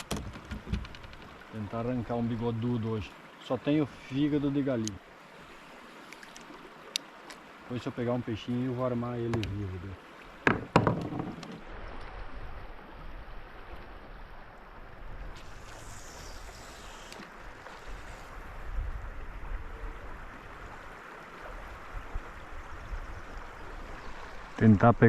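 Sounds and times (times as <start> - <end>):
river water running over rocks: 0.0 - 25.0.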